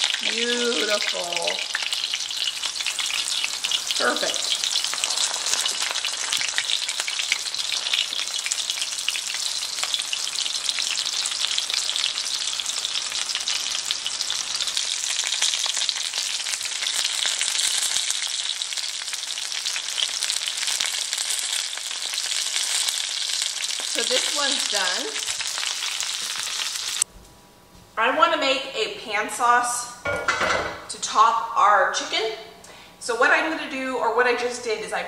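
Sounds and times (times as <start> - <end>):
chicken sizzling in hot oil: 0.0 - 27.1.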